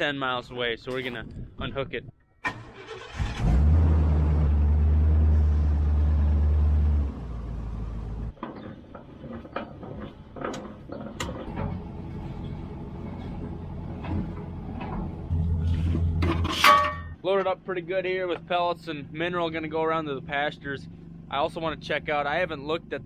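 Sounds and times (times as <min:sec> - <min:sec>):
pickup truck engine running: 0:02.6 - 0:08.4, 0:10.1 - 0:16.4
metal clanks and knocks: 0:08.3 - 0:17.6.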